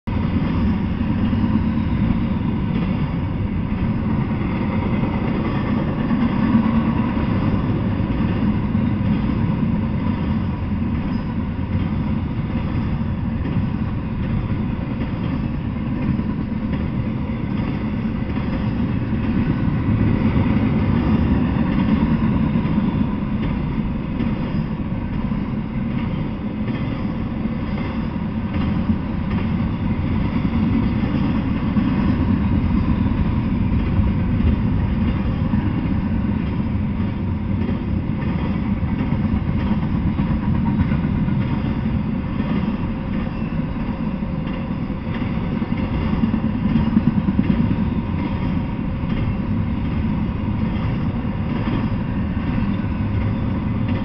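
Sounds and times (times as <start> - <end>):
freight train low rumble: 0.0 - 54.0.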